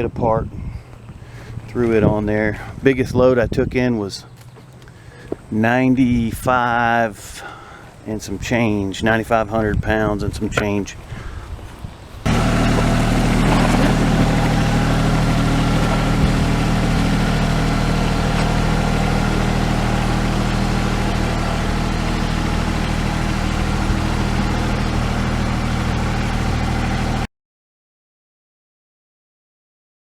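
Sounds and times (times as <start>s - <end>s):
tractor diesel engine running: 12.2s - 27.3s.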